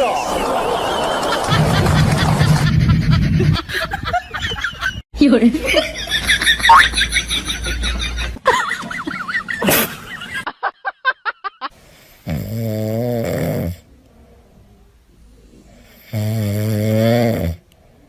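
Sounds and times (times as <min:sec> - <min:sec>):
pet snoring: 0:12.2 - 0:13.9, 0:15.8 - 0:17.6.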